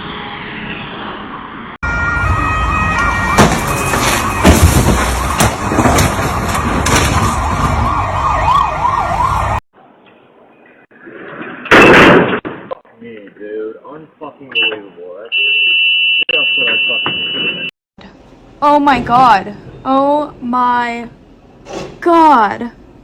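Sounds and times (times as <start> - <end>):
emergency vehicle siren: 0.0 - 9.6
loud bangs: 2.2 - 8.3, 11.7 - 12.8.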